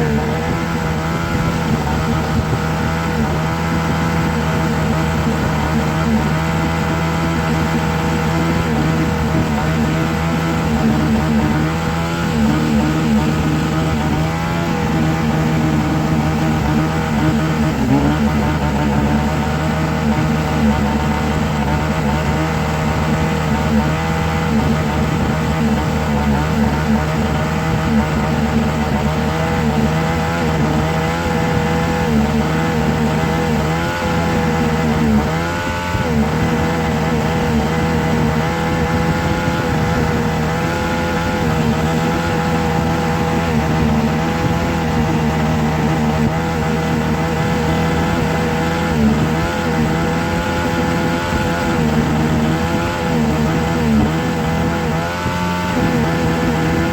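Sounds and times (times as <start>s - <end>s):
motor drone with whine: 0.0s - 56.9s.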